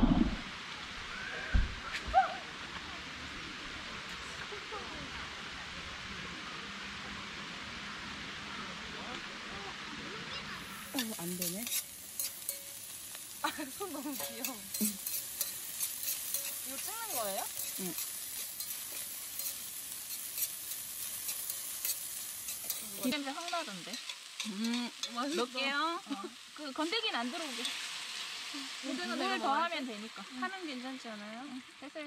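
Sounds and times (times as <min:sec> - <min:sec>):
onions sizzling in hot oil: 0:00.5 - 0:01.5, 0:02.4 - 0:32.0.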